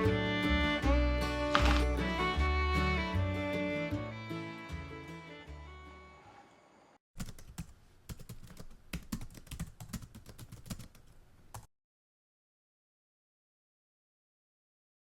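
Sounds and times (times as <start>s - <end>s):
background music: 0.0s - 6.1s
rapid irregular clicks and taps: 7.2s - 11.7s.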